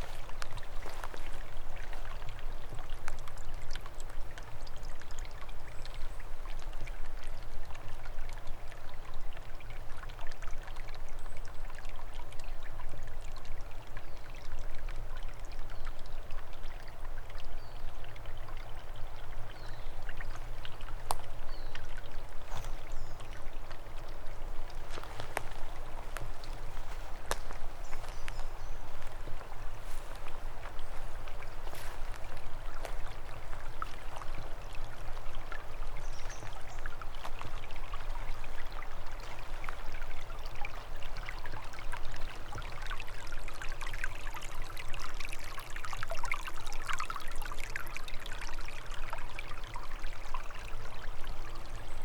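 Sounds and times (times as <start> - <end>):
stream trickling: 0.0 - 52.0
water splashes and drips: 0.0 - 52.0.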